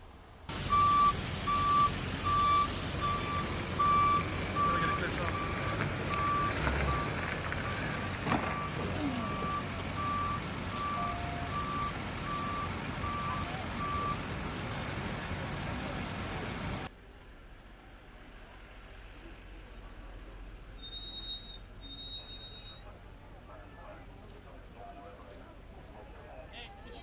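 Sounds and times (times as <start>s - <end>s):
street noise: 0.0s - 27.0s
reversing alarm beeping: 0.6s - 14.4s.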